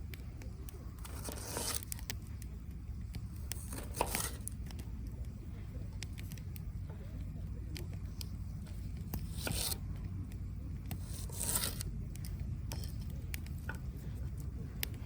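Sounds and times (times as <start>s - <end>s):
steady low rumble: 0.0s - 15.0s
scraping tearing noises: 0.7s - 2.2s, 3.5s - 4.8s, 9.0s - 9.9s, 10.9s - 13.2s.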